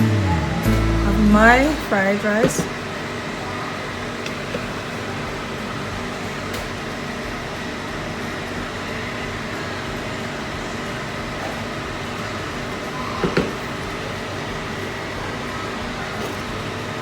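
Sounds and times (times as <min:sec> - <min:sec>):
fan humming: 0:00.0 - 0:17.0.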